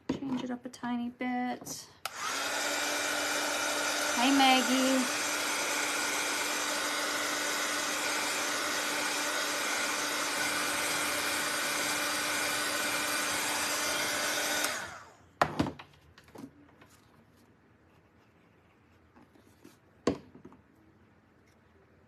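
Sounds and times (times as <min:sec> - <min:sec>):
electric blower whirring: 0:02.0 - 0:15.2.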